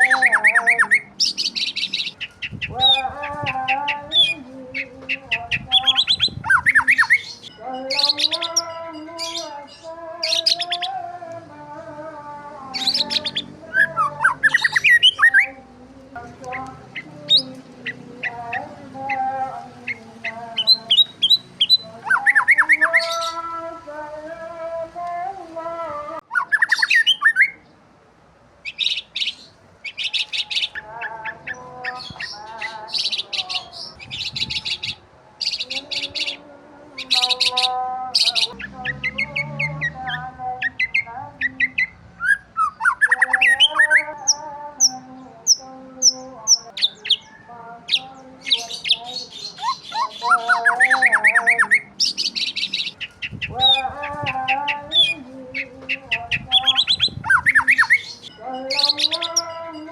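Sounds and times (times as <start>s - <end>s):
high whistled bird notes: 0.0s - 8.6s, 26.3s - 27.6s
birds chirping and trilling: 0.0s - 25.4s, 26.2s - 27.8s, 28.6s - 59.9s.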